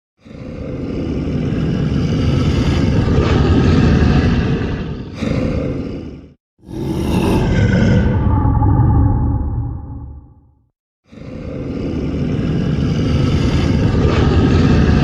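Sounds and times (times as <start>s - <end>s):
deep creature roar: 2.7s - 12.8s.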